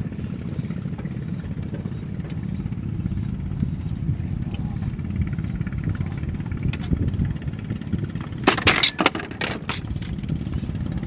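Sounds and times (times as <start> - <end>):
small motor running: 0.0 - 8.5.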